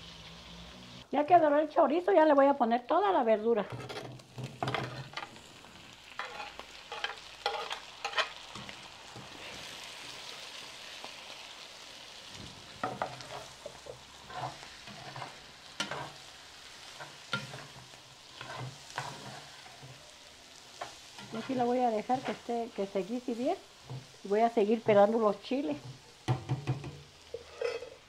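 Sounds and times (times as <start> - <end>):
vegetables sizzling in hot oil: 0.0 - 28.0
spatula knocking against pot: 26.3 - 27.0.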